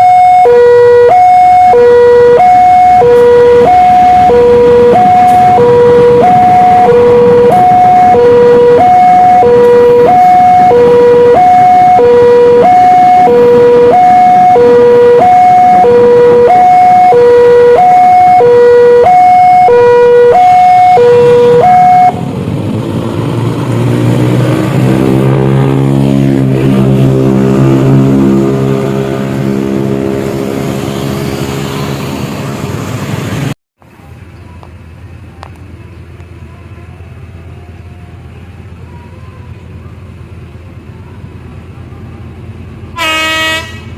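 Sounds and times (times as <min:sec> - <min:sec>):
two-tone crossing alarm: 0:00.0 - 0:22.2
diesel locomotive engine drone: 0:00.0 - 0:43.9.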